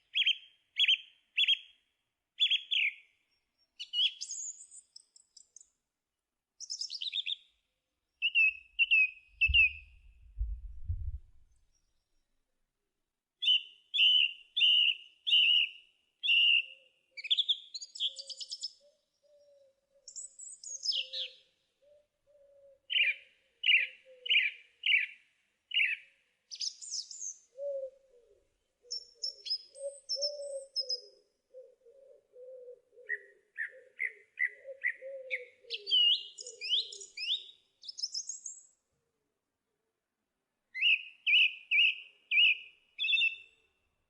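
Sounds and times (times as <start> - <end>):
soft low wavering bird call: 8.2 - 11.6, 18.0 - 24.5, 27.4 - 38.5.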